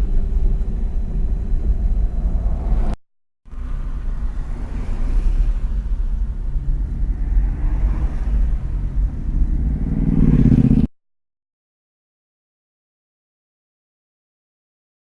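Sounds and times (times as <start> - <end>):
car road and engine noise: 0.0 - 10.9.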